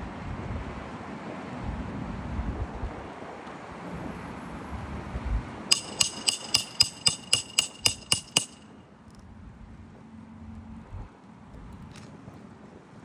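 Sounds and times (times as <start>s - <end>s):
hammer striking metal: 5.7s - 8.6s.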